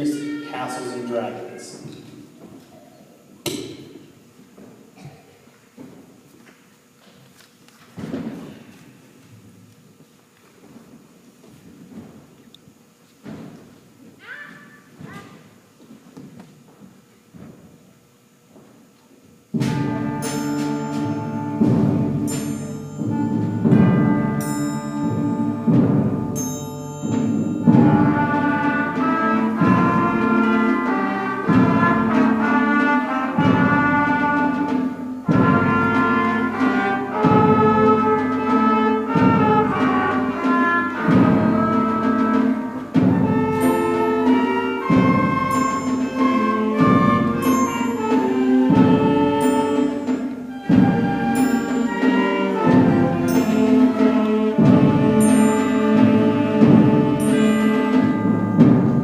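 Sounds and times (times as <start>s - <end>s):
concert band melody: 0.0s - 2.1s, 19.5s - 59.0s.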